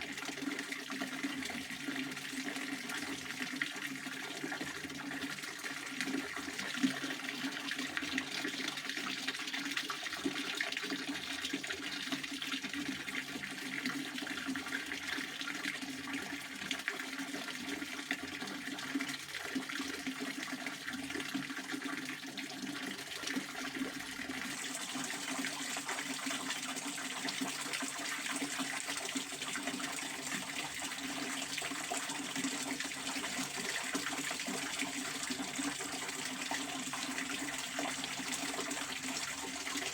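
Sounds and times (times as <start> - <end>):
fountain water splashing: 24.5 - 39.9.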